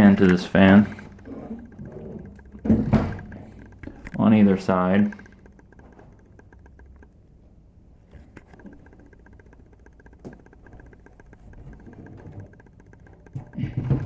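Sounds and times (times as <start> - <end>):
light clicks: 0.2 - 7.2.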